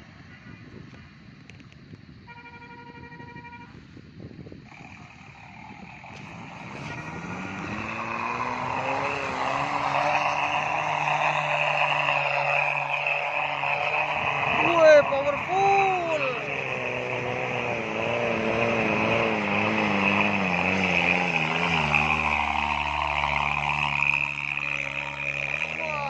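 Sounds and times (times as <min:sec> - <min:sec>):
horn-like tone: 0:02.3 - 0:03.8, 0:06.7 - 0:07.6
car engine accelerating: 0:04.6 - 0:26.0.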